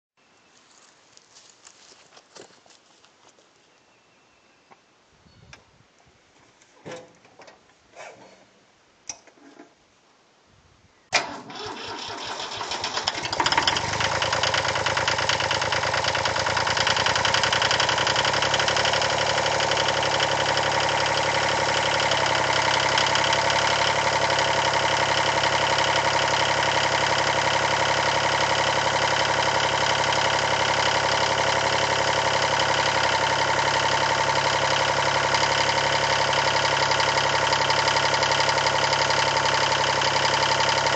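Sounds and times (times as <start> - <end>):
diesel tractor engine running: 11.1 - 40.9
starter cranking: 11.2 - 40.9.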